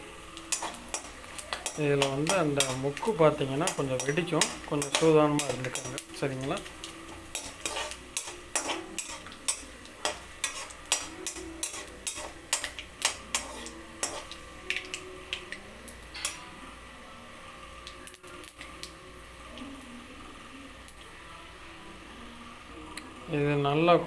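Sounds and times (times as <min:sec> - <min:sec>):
spices sizzling in hot oil: 0:00.0 - 0:24.0
spices clicking and crackling: 0:00.3 - 0:16.4.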